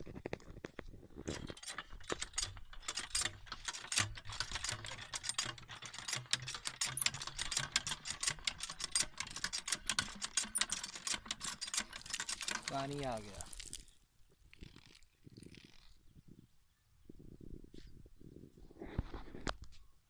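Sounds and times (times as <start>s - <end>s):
hand pump metallic clicks and rattles: 1.2s - 14.0s.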